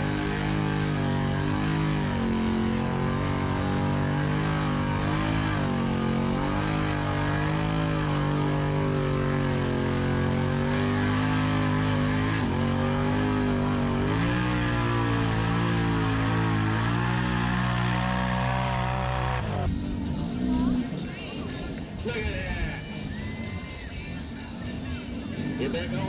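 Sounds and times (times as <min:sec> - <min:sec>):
off-road vehicle engine running: 0:00.0 - 0:26.0.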